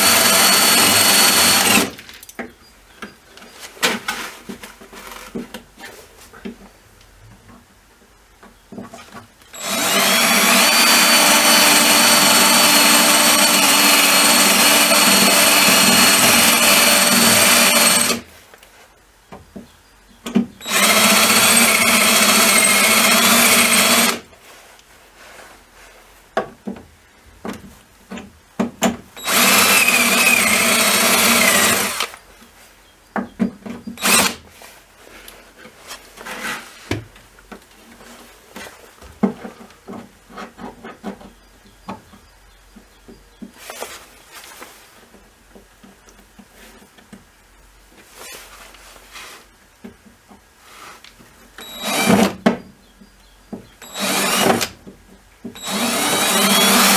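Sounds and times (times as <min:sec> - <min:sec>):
electric drill whining: 0:00.0 - 0:02.0, 0:09.6 - 0:18.2, 0:20.6 - 0:24.2, 0:29.2 - 0:32.2, 0:34.0 - 0:34.4, 0:51.6 - 0:52.3, 0:53.8 - 0:54.7, 0:55.6 - 0:56.9.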